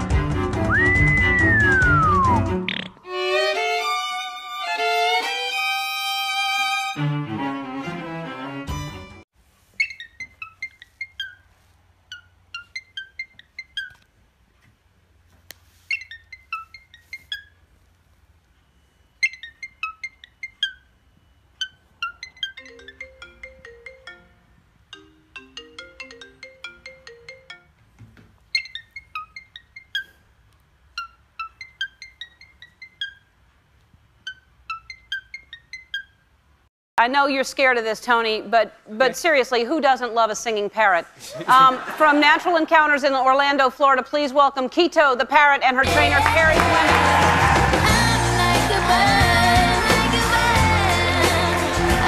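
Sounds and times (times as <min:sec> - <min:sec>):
ringtone melody: 0:21.7 - 0:27.8.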